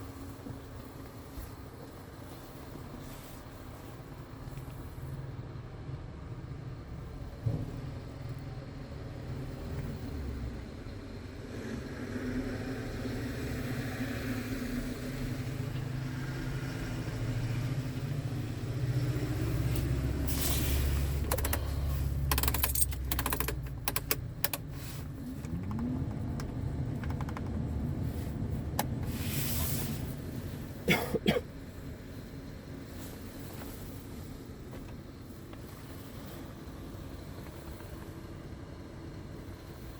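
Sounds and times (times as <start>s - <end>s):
diesel engine running: 0.0s - 39.9s
sharp clicks: 21.2s - 24.7s, 25.4s - 27.7s.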